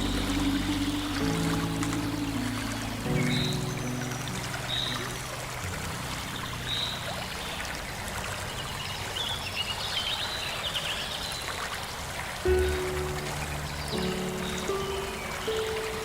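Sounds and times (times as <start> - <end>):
soft background music: 0.0 - 9.0, 12.5 - 16.0
stream water flowing: 0.0 - 16.0.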